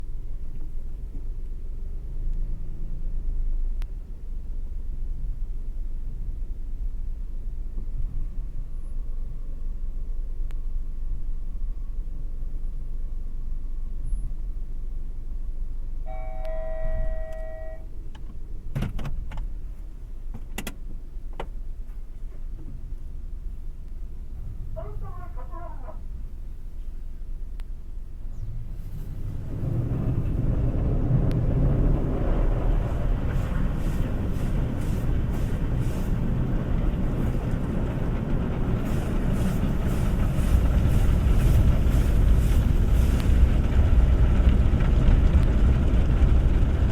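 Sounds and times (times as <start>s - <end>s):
car wash rumble: 0.0s - 46.9s
held chime tone: 16.1s - 17.9s
water against car body: 29.1s - 43.4s.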